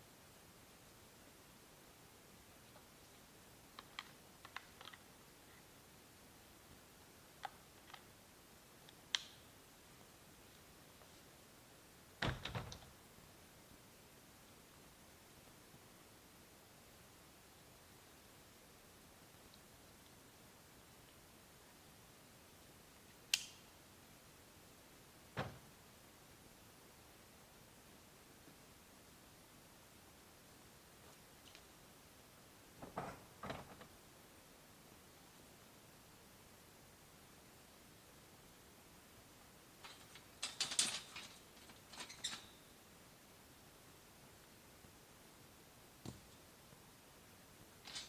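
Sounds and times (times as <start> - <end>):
faint even hiss: 0.0 - 48.0
faint sharp clicks: 23.3 - 23.6.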